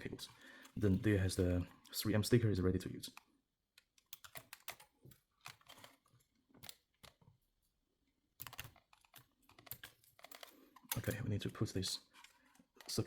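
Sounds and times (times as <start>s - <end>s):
clicks of handling plastic parts: 3.0s - 7.3s, 8.4s - 13.0s.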